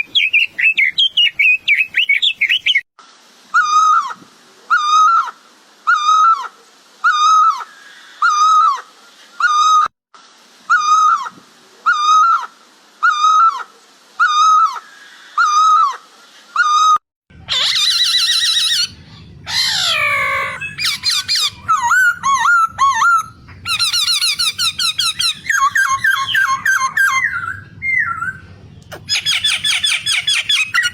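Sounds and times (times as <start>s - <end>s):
bird calling: 16.6s - 30.9s
faint low hum: 17.3s - 30.9s
squeaky chattering bird calls: 17.5s - 30.9s.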